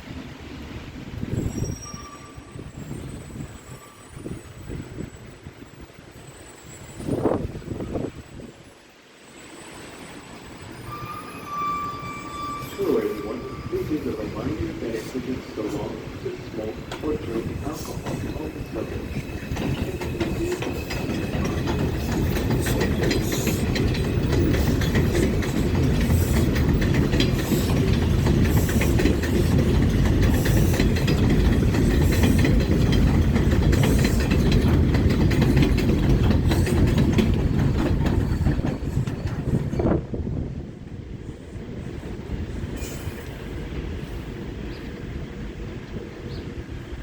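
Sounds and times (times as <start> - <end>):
train rumble: 0.0 - 47.0
wheels clacking over rail joints: 13.2 - 46.0.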